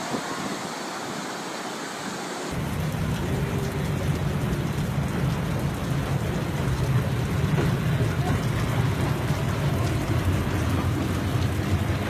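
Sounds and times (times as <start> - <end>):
heavy rain: 0.0 - 12.0
deep rumbling: 2.5 - 12.0.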